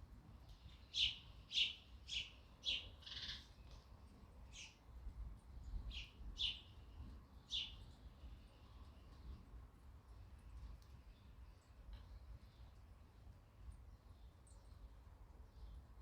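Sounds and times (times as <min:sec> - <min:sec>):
sparrow chirping: 0:00.7 - 0:03.5, 0:04.5 - 0:04.8, 0:05.9 - 0:06.8, 0:07.5 - 0:07.9.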